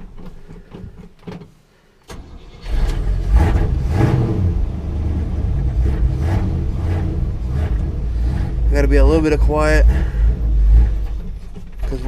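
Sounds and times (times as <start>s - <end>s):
engine cranking and starting: 0.0s - 12.0s
engine revving: 2.1s - 12.0s
engine running steadily: 3.2s - 12.0s.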